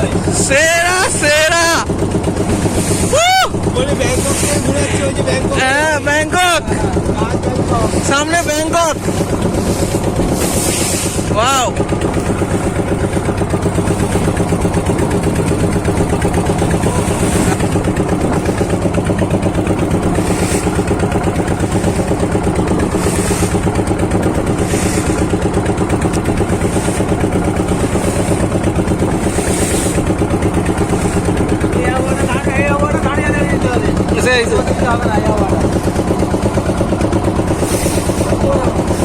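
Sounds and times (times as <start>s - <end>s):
boat engine humming: 0.0s - 39.0s
hissing rushes: 8.0s - 32.3s.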